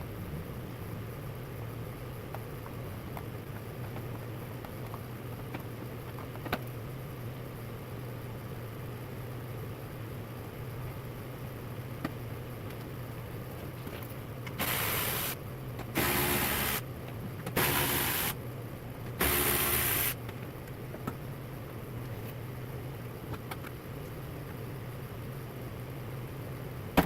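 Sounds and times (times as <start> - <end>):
steady low hum: 0.0 - 27.0
small motor bursts: 14.6 - 15.4, 16.0 - 16.8, 17.6 - 18.4, 19.2 - 20.2.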